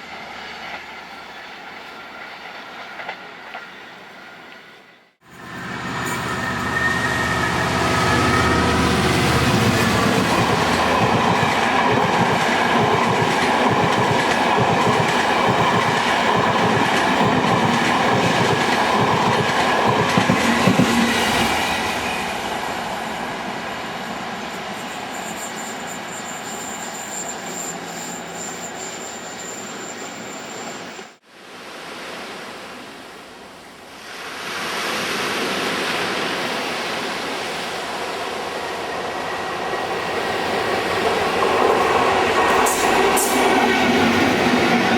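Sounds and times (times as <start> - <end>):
train wheels clattering over rails: 9.6 - 21.1.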